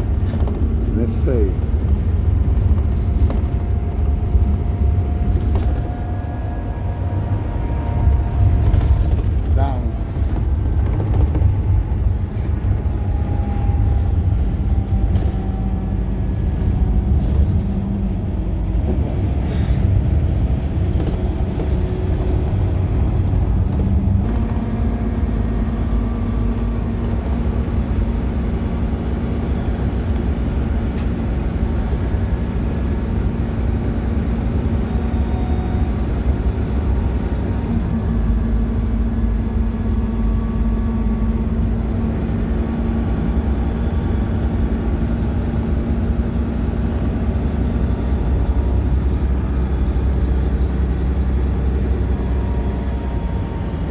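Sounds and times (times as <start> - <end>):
bus engine hum: 0.0 - 53.9
road rumble: 0.0 - 53.9.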